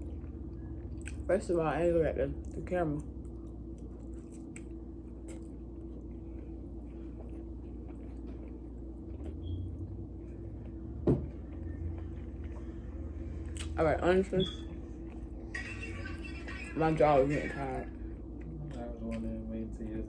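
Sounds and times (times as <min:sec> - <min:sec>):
person chewing: 0:00.0 - 0:01.3, 0:03.0 - 0:09.4, 0:13.3 - 0:13.8
low background hum: 0:00.0 - 0:20.0.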